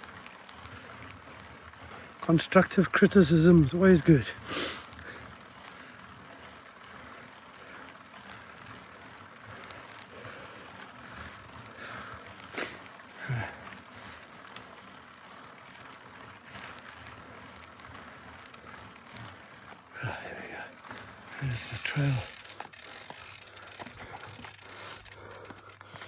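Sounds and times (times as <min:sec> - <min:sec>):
bike tyre and wind noise: 0:00.0 - 0:26.0
faint bike clicks: 0:00.0 - 0:26.0.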